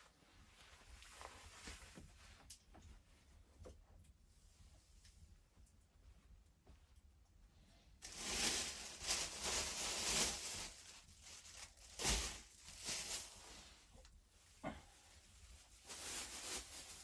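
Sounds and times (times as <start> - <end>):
rustling crackling and tearing: 8.0 - 13.8, 15.8 - 17.0.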